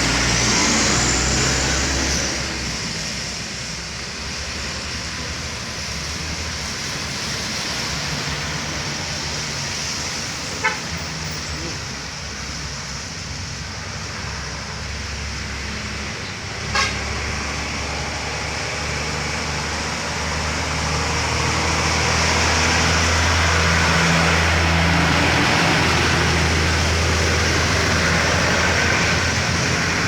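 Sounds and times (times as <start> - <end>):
truck engine droning: 0.0 - 4.1, 14.5 - 30.0
truck horn beep: 10.6 - 10.9, 16.7 - 17.0.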